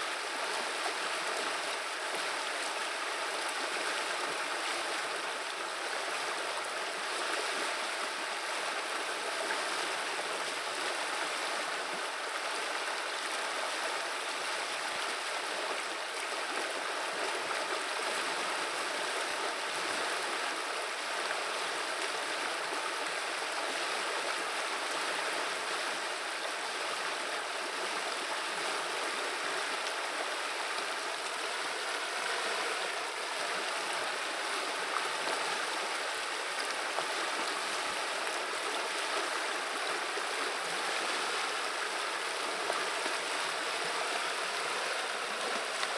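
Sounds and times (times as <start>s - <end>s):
river water flowing and babbling: 0.0s - 45.9s.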